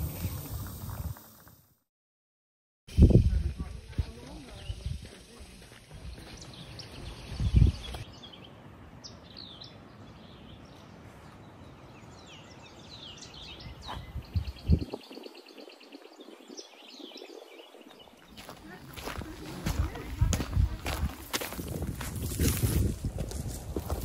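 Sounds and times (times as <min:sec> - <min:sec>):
birds chirping: 0:03.6 - 0:22.4.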